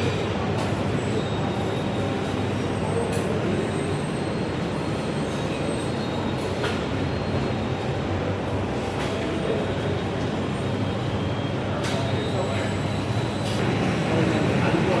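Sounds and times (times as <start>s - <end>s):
restaurant din: 8.7s - 15.0s.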